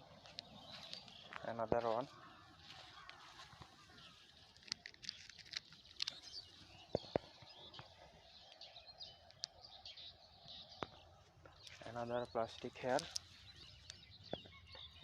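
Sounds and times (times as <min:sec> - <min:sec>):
faint birds chirping: 0:00.0 - 0:15.0
sharp clicks: 0:04.5 - 0:07.3.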